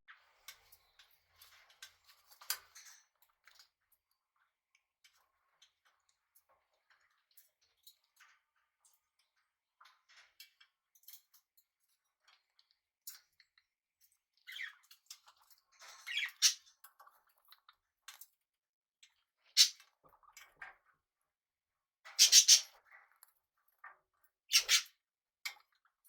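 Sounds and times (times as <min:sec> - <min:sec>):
small clicks and scratches: 0:00.1 - 0:18.4
parrots chirping: 0:22.2 - 0:22.7, 0:24.5 - 0:24.8.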